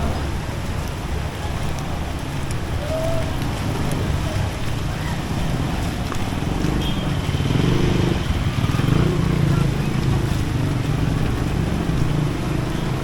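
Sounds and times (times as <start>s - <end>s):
steady rain hiss: 0.0s - 13.0s
vehicle engine running: 3.6s - 13.0s.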